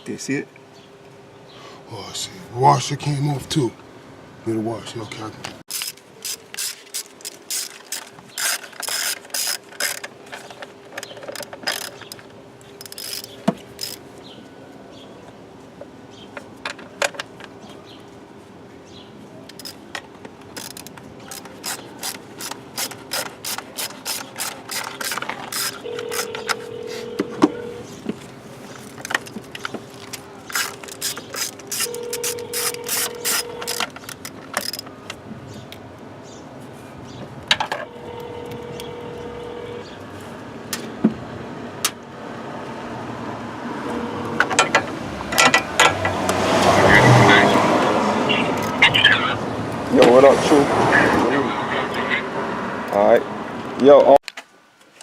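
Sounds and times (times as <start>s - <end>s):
socket ratchet clicking: 5.7s - 10.1s, 12.8s - 14.0s, 20.5s - 26.6s, 30.5s - 34.9s.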